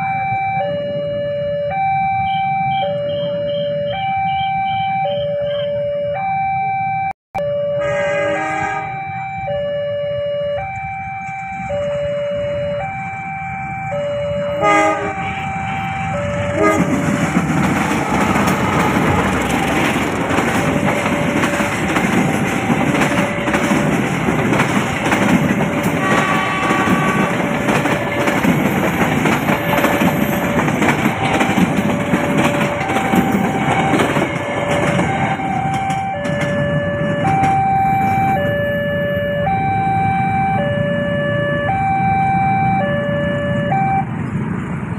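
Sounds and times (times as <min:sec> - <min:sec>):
level crossing alarm: 0:00.0 - 0:44.2
loud horn blast: 0:07.8 - 0:09.2, 0:14.4 - 0:19.8, 0:25.8 - 0:27.7
train wheels rumbling on rails: 0:10.6 - 0:40.6.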